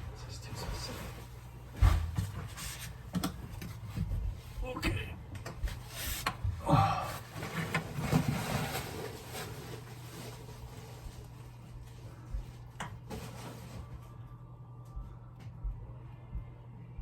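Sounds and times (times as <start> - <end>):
washing machine humming: 0.0 - 17.0
rustling and knocks: 7.3 - 14.2.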